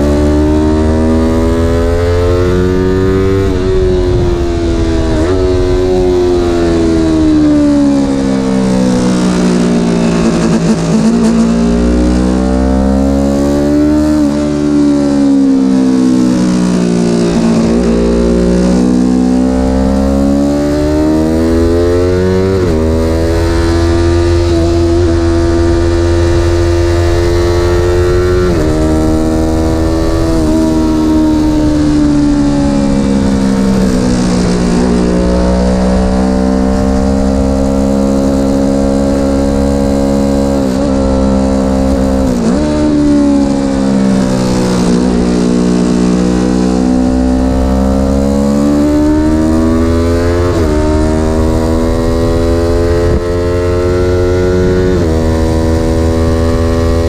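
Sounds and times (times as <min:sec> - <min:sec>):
vehicle engine under hard load: 0:00.0 - 0:15.2.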